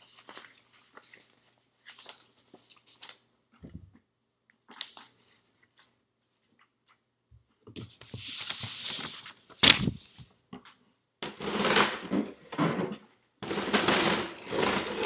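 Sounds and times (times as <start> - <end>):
rustling handling noises: 8.0 - 10.3
sharp click: 9.6 - 10.0.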